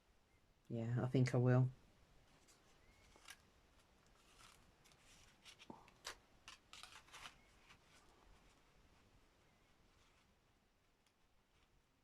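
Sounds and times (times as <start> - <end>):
paper rustling: 2.3 - 9.1.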